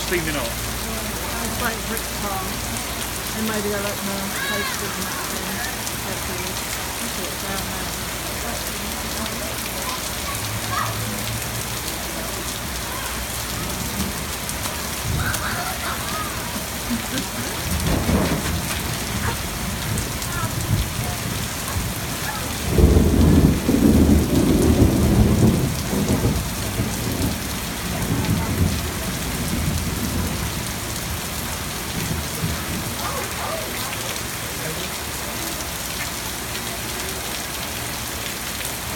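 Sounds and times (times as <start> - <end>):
steady rain: 0.0 - 38.9
thunder rumbling: 13.2 - 33.2.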